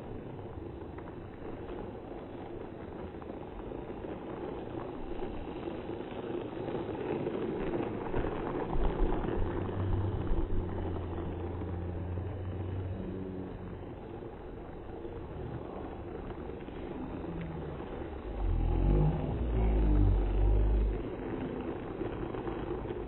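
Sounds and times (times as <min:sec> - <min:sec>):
toy train rumbling whir: 0:00.0 - 0:23.0
low steady hum: 0:07.0 - 0:23.0.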